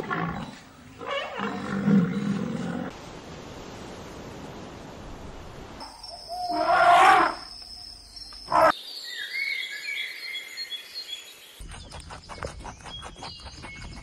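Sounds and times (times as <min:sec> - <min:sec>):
birds chirping: 0:00.0 - 0:02.9
loud animal call: 0:06.3 - 0:07.4.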